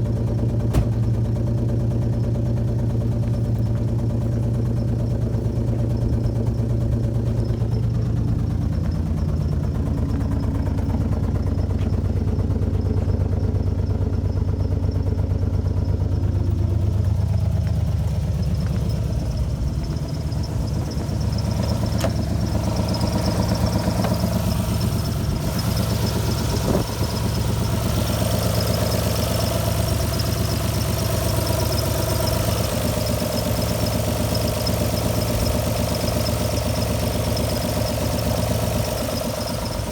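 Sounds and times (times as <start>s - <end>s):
car engine idling roughly: 0.0s - 39.9s.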